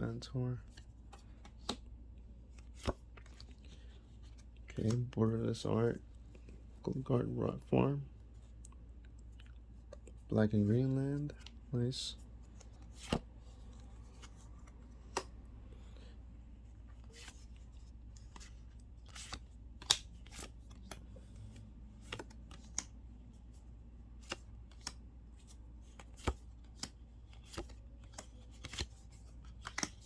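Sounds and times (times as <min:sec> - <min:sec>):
cards being flipped through: 0:00.6 - 0:05.2, 0:11.2 - 0:16.1, 0:16.8 - 0:30.0.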